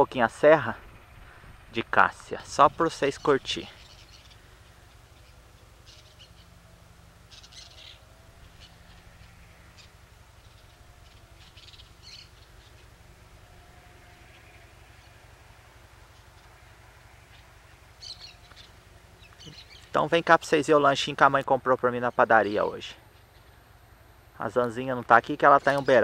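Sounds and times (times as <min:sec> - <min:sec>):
low steady rumble: 0:00.0 - 0:26.0
faint bird chirps: 0:03.1 - 0:15.3, 0:16.1 - 0:20.0.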